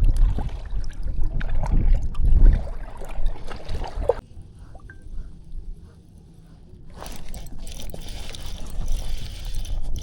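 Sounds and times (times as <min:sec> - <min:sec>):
water sloshing around kayak: 0:00.0 - 0:04.2.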